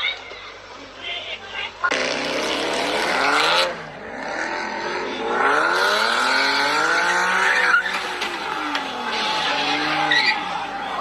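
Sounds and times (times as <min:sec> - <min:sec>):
car engine revving hard: 0:01.9 - 0:11.0
tyres squealing: 0:06.7 - 0:11.0.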